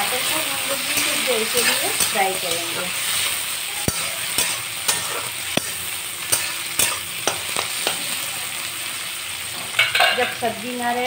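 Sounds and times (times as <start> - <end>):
vegetables sizzling in oil: 0.0 - 11.0
spatula scraping and knocking pan: 0.7 - 8.2.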